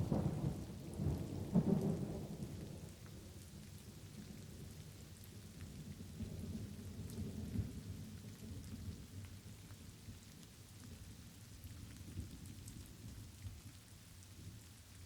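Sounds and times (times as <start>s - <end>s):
thunder rumbling: 0.0s - 2.8s
light rain falling: 0.0s - 15.0s.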